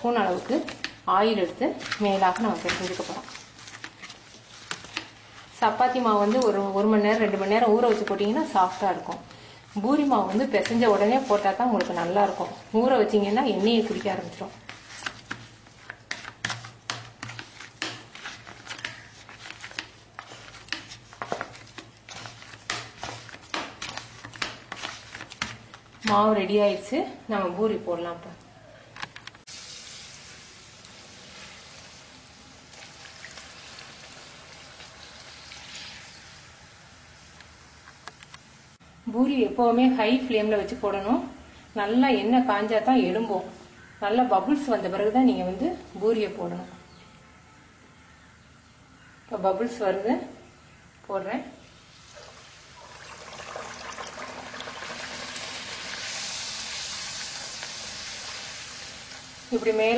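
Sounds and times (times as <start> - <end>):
faint oil crackles: 29.3 - 38.6
hot oil hissing in pan: 29.5 - 36.6, 51.9 - 59.7.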